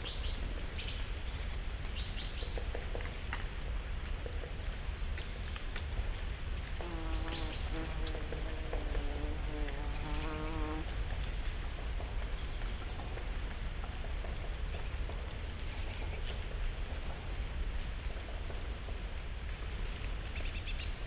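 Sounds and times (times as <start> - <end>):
songbirds calling: 6.8 - 10.8
flying insect buzzing: 6.8 - 10.9.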